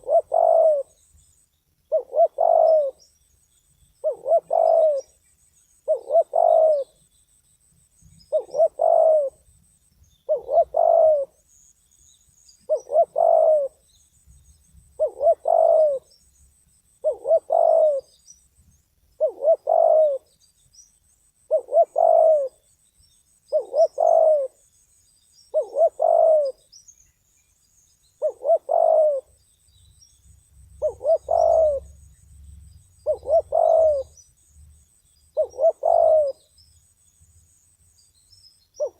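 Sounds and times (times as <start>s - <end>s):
dove cooing: 0.0s - 1.0s, 1.9s - 3.0s, 4.0s - 5.2s, 5.8s - 7.0s, 8.3s - 9.4s, 10.3s - 11.4s, 12.6s - 13.8s, 15.0s - 16.1s, 17.0s - 18.2s, 19.2s - 20.3s, 21.5s - 22.6s, 23.5s - 24.6s, 25.5s - 26.7s, 28.2s - 29.4s, 30.8s - 32.0s, 33.0s - 34.2s, 35.3s - 36.5s.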